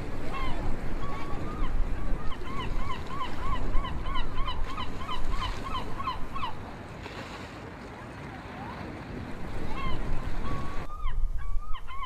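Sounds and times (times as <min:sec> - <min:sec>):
seagull yelping calls: 0:00.3 - 0:06.6, 0:09.7 - 0:12.0.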